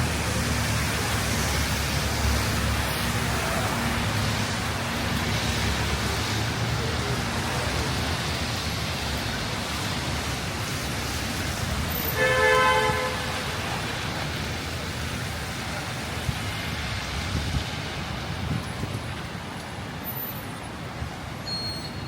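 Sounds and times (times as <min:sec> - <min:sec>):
heavy rain hissing: 0:00.0 - 0:22.0
road traffic rumbling: 0:00.0 - 0:22.0
vehicle horn toot: 0:12.2 - 0:13.5.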